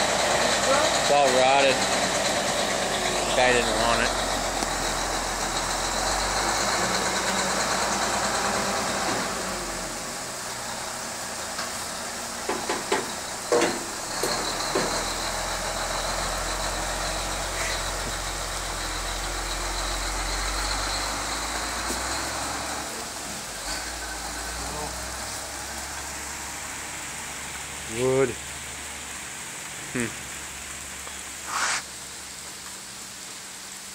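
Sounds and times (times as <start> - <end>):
truck engine running: 0.0 - 30.1
sharp knocks: 12.4 - 15.1.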